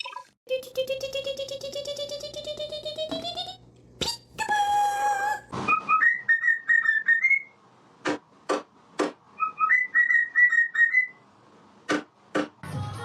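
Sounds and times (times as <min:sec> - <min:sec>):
parrot whistling: 0:05.7 - 0:07.6, 0:09.4 - 0:11.2.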